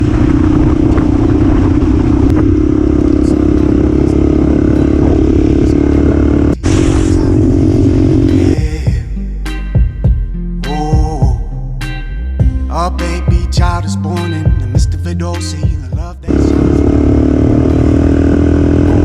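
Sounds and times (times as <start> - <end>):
dirt bike engine running: 0.0 - 9.0, 15.6 - 19.0.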